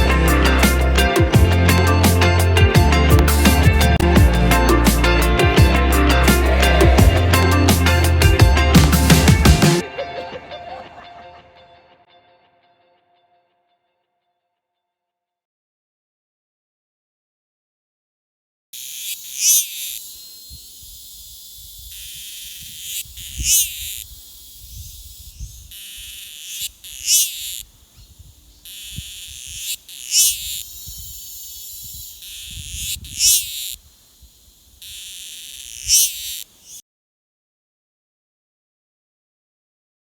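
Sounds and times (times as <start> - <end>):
high hissing drone: 3.4 - 9.8, 18.8 - 36.8
wild animal calling: 6.2 - 8.1, 18.8 - 36.8.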